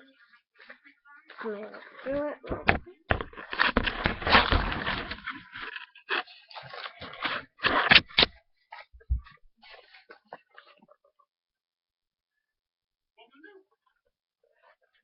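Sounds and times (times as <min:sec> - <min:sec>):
rustling and scraping handling noise: 0:00.0 - 0:10.8.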